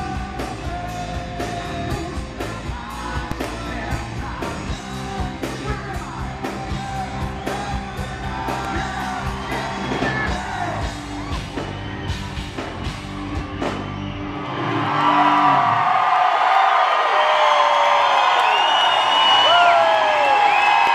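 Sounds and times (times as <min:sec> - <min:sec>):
man singing: 0:00.0 - 0:11.0
live hard rock band playing: 0:00.0 - 0:15.2.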